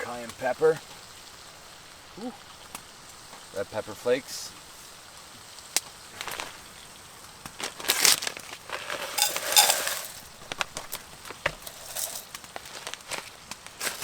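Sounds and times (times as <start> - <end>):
food packaging crinkling: 6.2 - 14.0
cooking gear clicks and knocks: 7.4 - 14.0.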